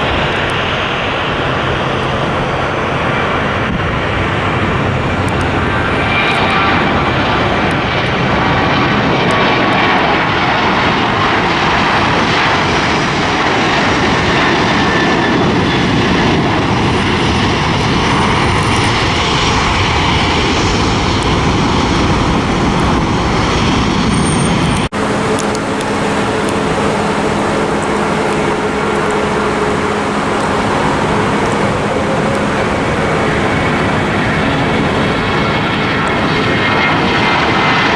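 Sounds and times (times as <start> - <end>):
airliner engines roaring: 0.0 - 37.9
faint whining tones: 18.2 - 37.2
low steady hum: 24.8 - 37.2.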